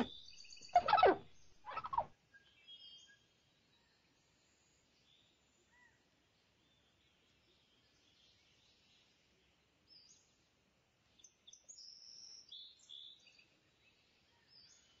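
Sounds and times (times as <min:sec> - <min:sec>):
high-pitched bird chirps: 0:00.8 - 0:02.0.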